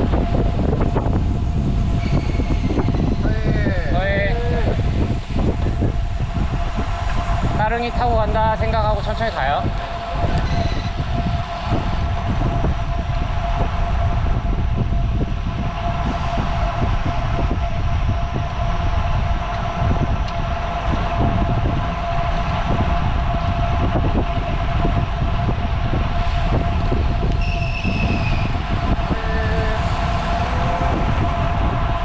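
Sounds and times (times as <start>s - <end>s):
bicycle tyre noise: 0.0s - 32.0s
thin steady whine: 0.0s - 32.0s
wind rumble on microphone: 0.0s - 32.0s
short falling whistle: 27.4s - 28.5s.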